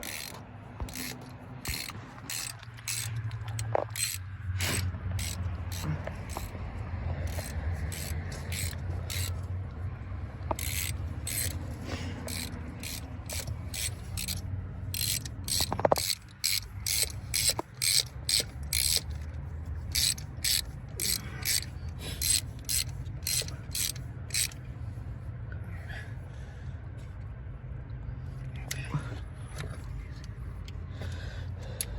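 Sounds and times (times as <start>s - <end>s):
rhythmic mechanical clicking: 0.0s - 24.7s
steady low hum: 0.0s - 31.9s.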